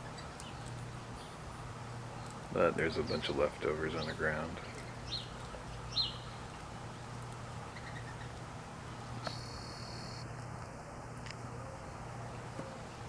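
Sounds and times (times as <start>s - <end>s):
songbird chirping: 0.0s - 6.6s, 7.7s - 8.4s, 9.2s - 10.3s
low background hum: 0.0s - 13.0s.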